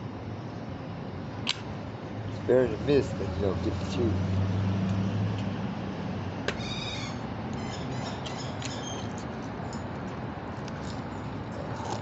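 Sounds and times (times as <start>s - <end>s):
steady background hum: 0.0s - 12.0s
sharp click: 1.5s - 1.7s
bird short high calls: 6.6s - 9.1s.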